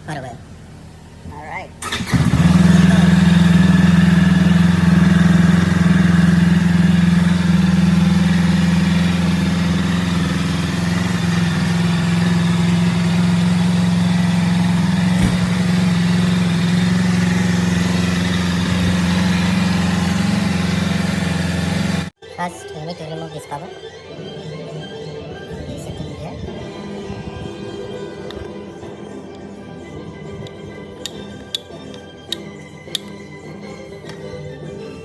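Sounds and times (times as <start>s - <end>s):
motorcycle engine idling: 0.0s - 22.1s.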